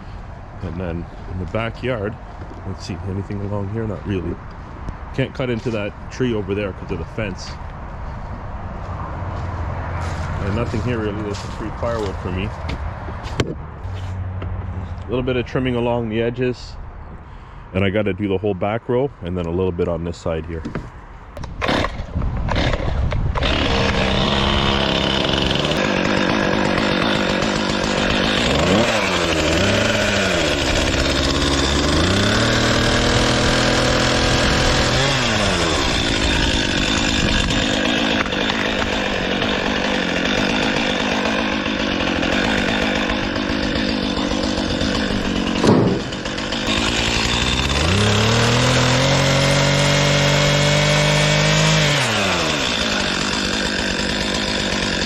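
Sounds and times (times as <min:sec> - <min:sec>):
chainsaw revving and cutting: 0:09.4 - 0:12.7, 0:21.6 - 0:55.0.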